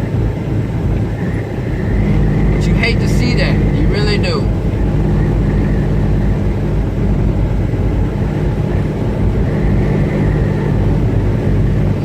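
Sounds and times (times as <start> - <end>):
diesel engine drone in truck cab: 0.0 - 12.0.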